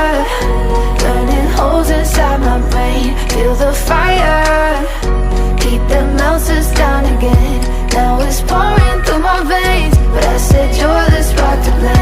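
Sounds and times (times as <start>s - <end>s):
sung pop melody: 0.0s - 12.0s
deep bass hits dropping in pitch: 8.5s - 11.2s.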